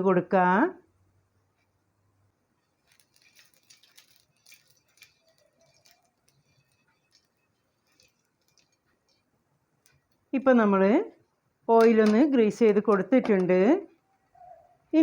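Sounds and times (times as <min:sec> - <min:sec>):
oil crackling on hot pan: 0:01.2 - 0:10.4.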